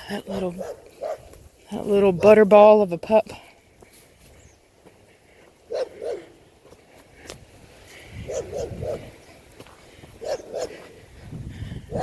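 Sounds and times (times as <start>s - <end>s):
dog barking: 0.4s - 1.3s, 5.7s - 6.4s, 8.3s - 9.1s, 10.2s - 10.9s.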